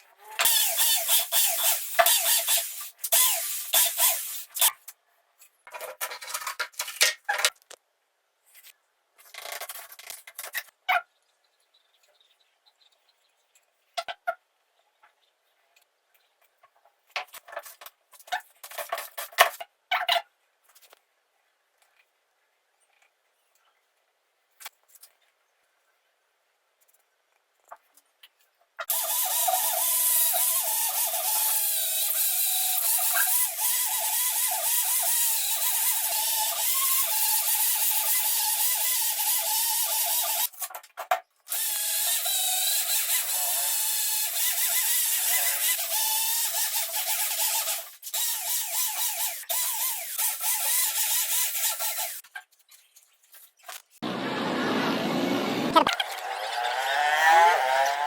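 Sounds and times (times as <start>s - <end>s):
small power tool whining: 0.3s - 4.7s, 28.9s - 40.5s, 41.5s - 52.2s, 54.1s - 58.0s
lower mechanical sound: 54.0s - 58.0s.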